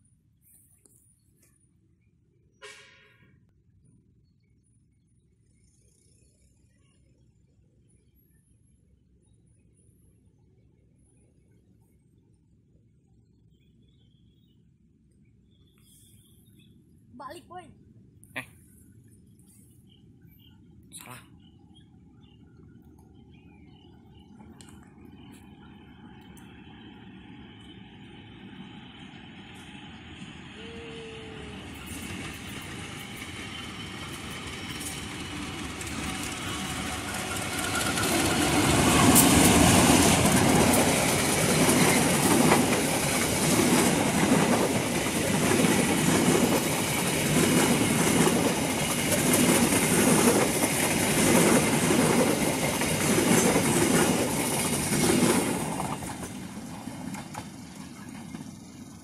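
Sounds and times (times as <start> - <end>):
passenger train passing: 21.1 - 59.0
clickety-clack of wheels on rail joints: 31.4 - 59.0.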